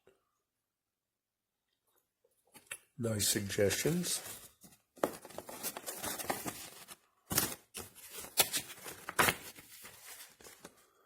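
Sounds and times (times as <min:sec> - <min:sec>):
packaging rustling and crinkling: 0:04.0 - 0:10.9.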